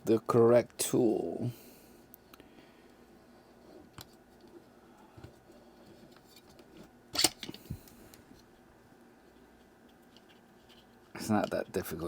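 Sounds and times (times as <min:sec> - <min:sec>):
metal tool clicks and scrapes: 0:07.2 - 0:07.6.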